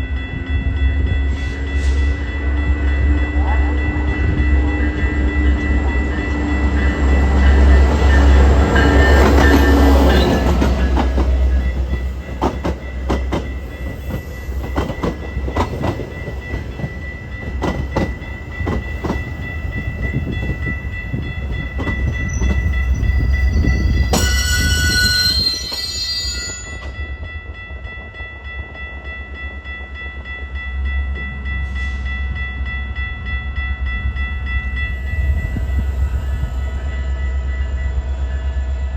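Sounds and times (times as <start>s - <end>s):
train rumbling past: 0.0s - 38.9s
wheels clicking over rail joints: 8.0s - 19.4s
high-pitched squeal: 23.0s - 26.9s.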